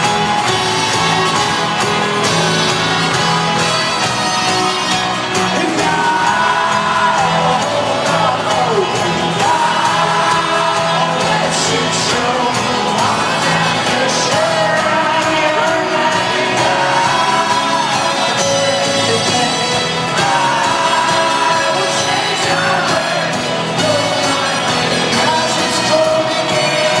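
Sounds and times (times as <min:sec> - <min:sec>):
crowd whooping and cheering: 0:00.0 - 0:27.0
folk-rock band playing live: 0:00.0 - 0:27.0
sustained sung vocals: 0:05.4 - 0:27.0.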